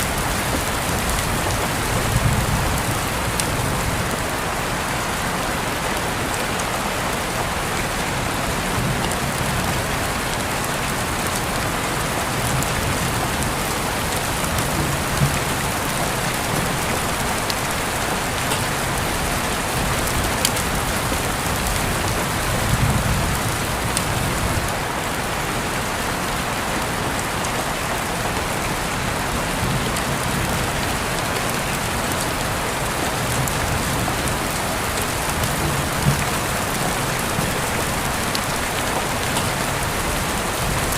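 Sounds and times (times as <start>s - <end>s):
steady rain falling: 0.0s - 40.9s
raindrop taps: 14.2s - 17.6s, 34.2s - 39.7s.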